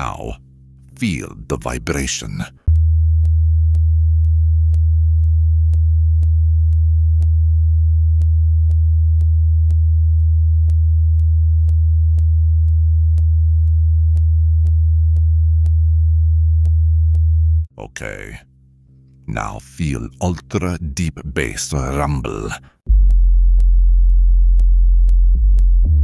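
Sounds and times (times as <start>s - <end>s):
deep bass test tone: 2.7s - 18.0s, 22.9s - 26.0s.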